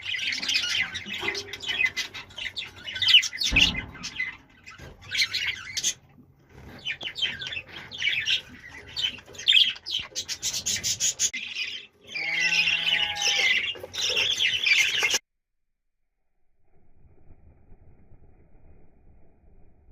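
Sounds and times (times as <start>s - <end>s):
budgies chirping and chattering: 0.0s - 15.2s.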